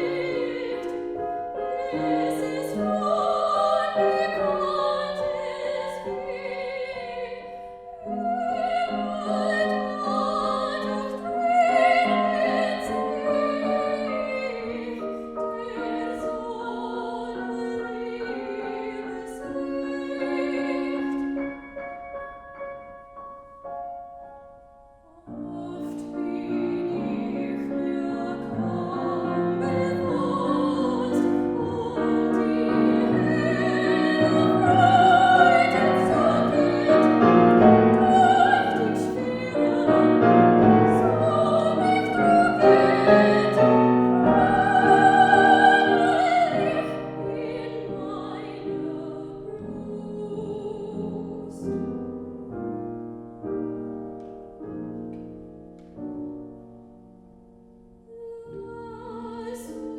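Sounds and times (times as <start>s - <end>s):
soprano singing with vibrato: 0.0s - 23.0s, 25.0s - 52.2s, 58.1s - 59.9s
piano accompaniment: 0.0s - 59.9s.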